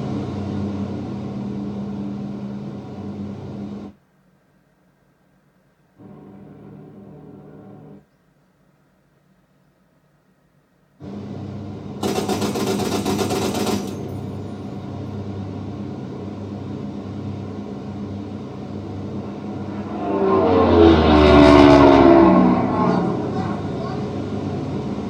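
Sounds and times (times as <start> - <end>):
low pulsing drone: 0.0 - 3.9, 6.0 - 8.0, 14.3 - 25.0.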